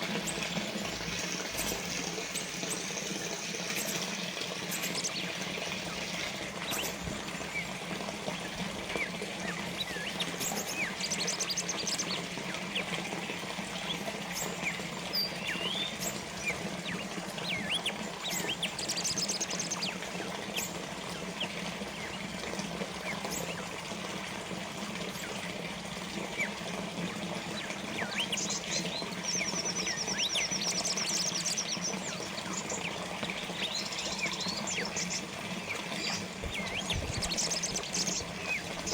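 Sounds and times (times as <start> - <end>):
small birds chirping: 0.0 - 23.8, 25.0 - 38.9
water fountain trickling: 0.0 - 38.9.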